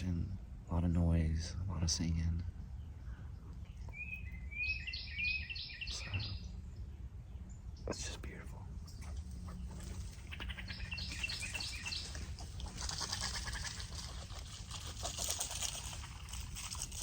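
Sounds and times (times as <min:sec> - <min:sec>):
steady low rumble: 0:00.0 - 0:17.0
woodland birds singing: 0:00.0 - 0:17.0
harsh bird chattering: 0:03.8 - 0:06.5, 0:07.9 - 0:14.3
whistled bird notes: 0:03.8 - 0:06.6.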